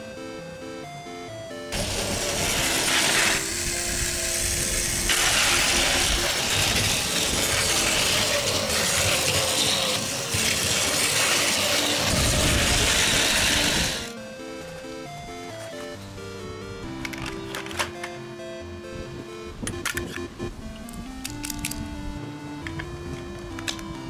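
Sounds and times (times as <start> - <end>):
toy train whirring and rattling: 1.7 - 14.7.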